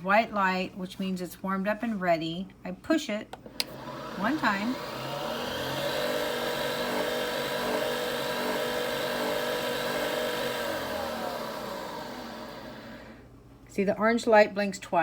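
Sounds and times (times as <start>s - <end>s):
coffee machine whirring: 3.5s - 13.2s.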